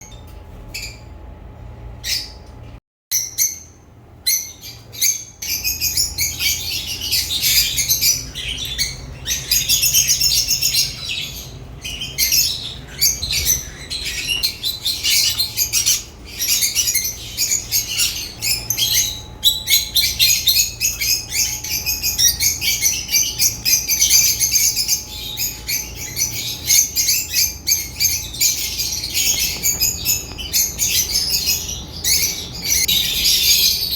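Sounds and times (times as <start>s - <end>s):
lovebirds chirping and chattering: 0.0s - 1.1s, 2.0s - 33.9s.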